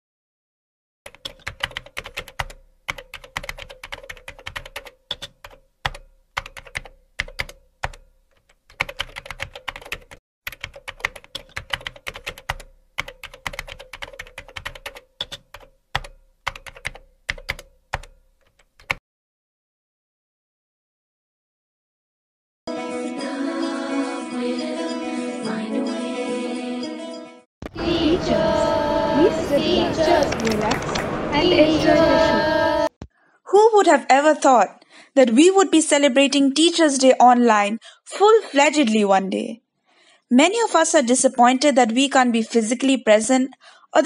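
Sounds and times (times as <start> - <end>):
keyboard typing: 1.1 - 19.0.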